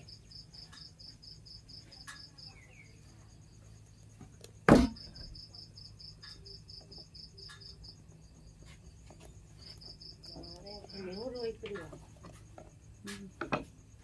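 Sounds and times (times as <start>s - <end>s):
cricket chirping: 0.0s - 14.0s
sharp knock: 4.7s - 5.2s.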